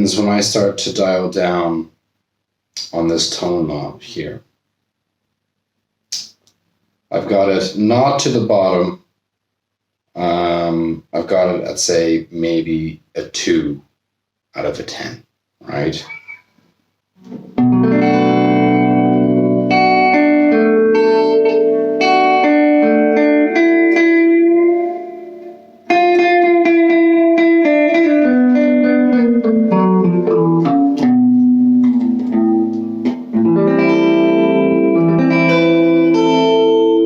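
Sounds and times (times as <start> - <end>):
electric guitar chords and notes: 17.2 - 37.0.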